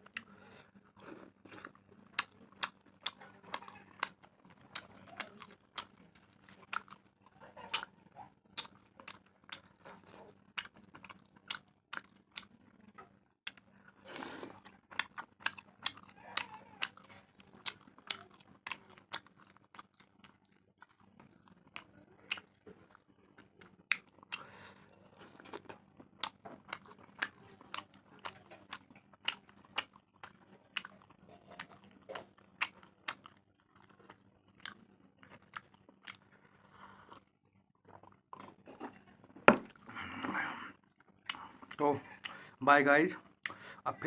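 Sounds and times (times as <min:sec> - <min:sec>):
person chewing food: 0:00.0 - 0:44.0.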